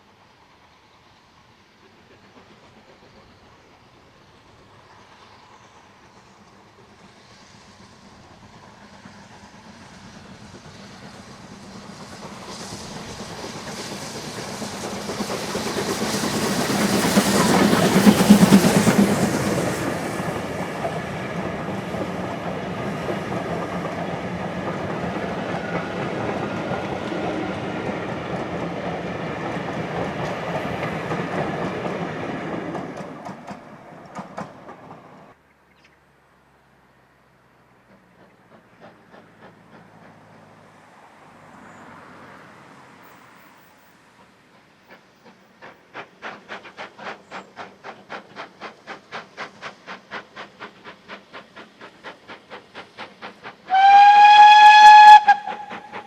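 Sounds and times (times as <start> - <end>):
steam locomotives passing: 0.0 - 56.0
wheels clacking over rail joints: 10.4 - 35.3.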